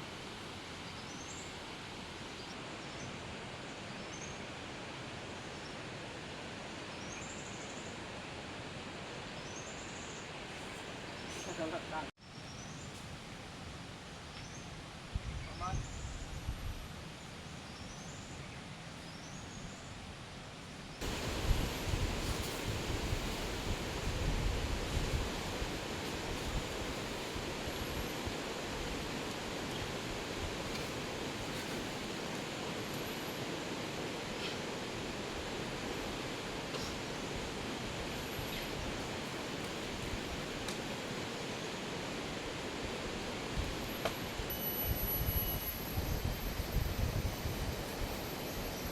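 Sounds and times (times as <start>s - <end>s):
heavy rain rushing: 21.0s - 48.9s.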